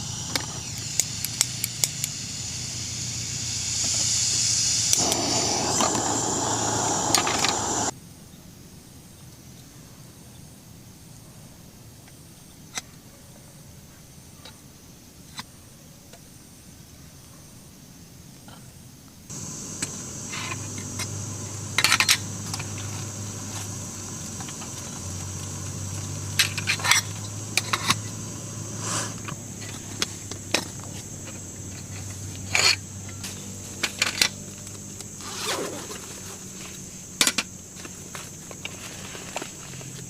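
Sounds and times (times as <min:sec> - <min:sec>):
high-pitched hiss: 0:00.0 - 0:07.9, 0:19.3 - 0:40.0.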